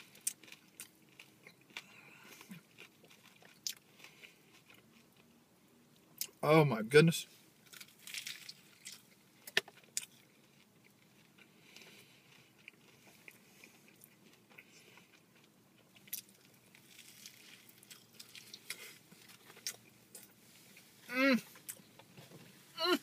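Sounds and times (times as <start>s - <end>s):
chewing with soft crunching: 0.0s - 6.4s, 7.7s - 22.3s.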